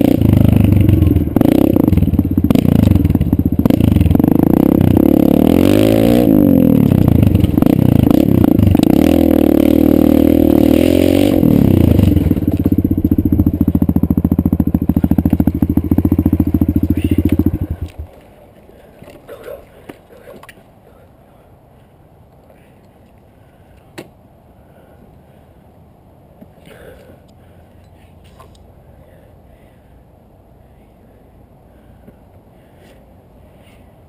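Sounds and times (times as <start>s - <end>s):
dirt bike engine revving and idling: 0.0s - 18.1s.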